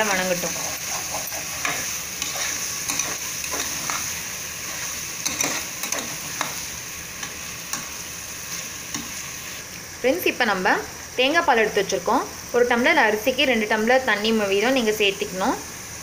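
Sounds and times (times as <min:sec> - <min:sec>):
vegetables sizzling in oil: 0:00.0 - 0:16.0
metal spatula scraping pot: 0:00.3 - 0:06.6.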